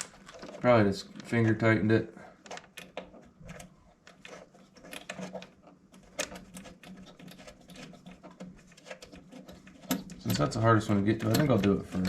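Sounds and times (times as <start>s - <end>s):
clicks and scrapes of screws: 2.4s - 12.0s.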